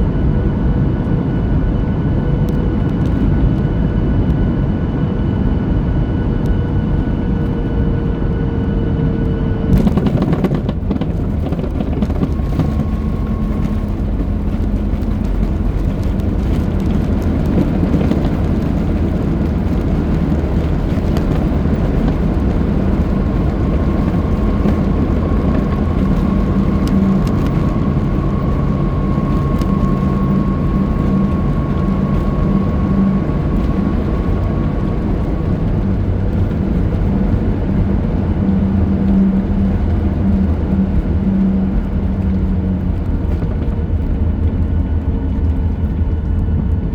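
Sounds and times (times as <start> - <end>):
low jet engine hum: 0.0 - 46.9.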